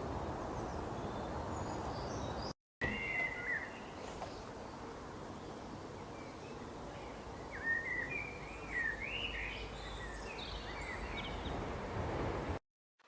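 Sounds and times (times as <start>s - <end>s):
outdoor background hiss: 0.0s - 12.6s
songbird whistling notes: 2.8s - 4.0s, 7.5s - 11.5s.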